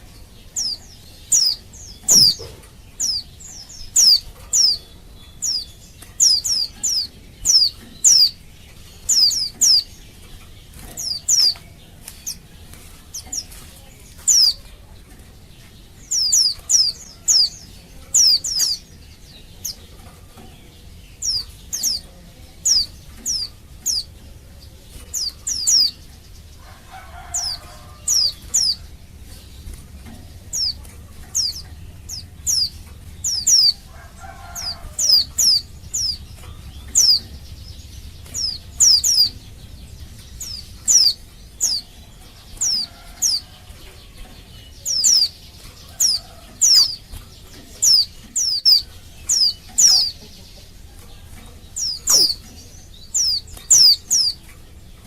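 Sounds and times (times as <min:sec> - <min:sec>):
bird chirping high and thin: 0:00.6 - 0:04.8, 0:51.9 - 0:52.5.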